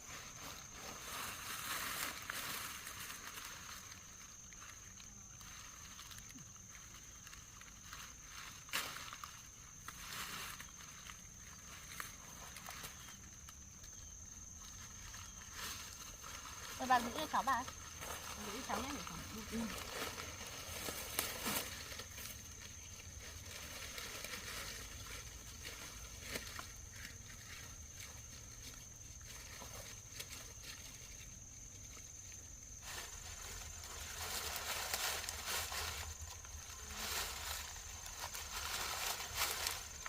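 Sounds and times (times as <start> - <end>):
dry corn stalks rustling: 0.0 - 40.0.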